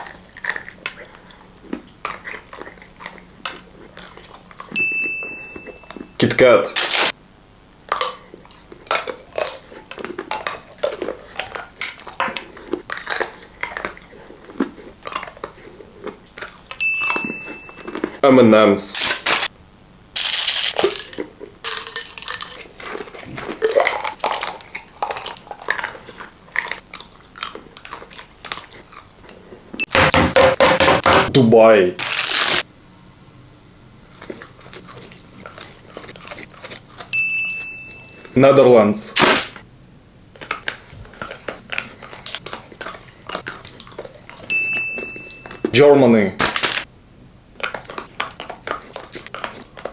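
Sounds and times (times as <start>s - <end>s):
crunching and chewing wafer: 0.0s - 4.8s, 7.8s - 18.2s, 20.2s - 29.8s, 34.0s - 37.2s, 40.3s - 45.8s, 46.4s - 46.9s, 47.5s - 49.9s
high-pitched tone: 4.8s - 6.2s, 16.8s - 18.1s, 37.2s - 38.4s, 44.5s - 45.8s.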